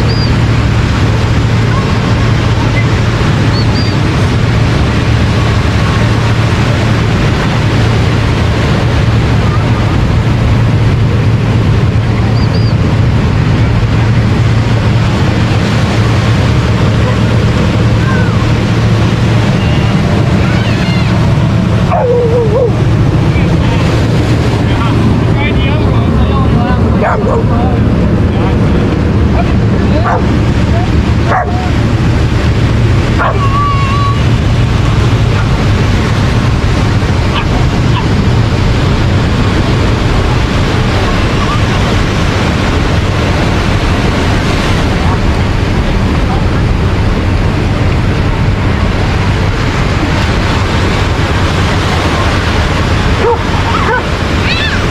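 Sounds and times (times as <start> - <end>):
ocean surf: 0.0 - 54.9
wind rumble on microphone: 0.0 - 54.9
dog yipping: 21.9 - 22.7, 31.3 - 31.7, 53.2 - 54.8
dog whining: 21.9 - 22.8.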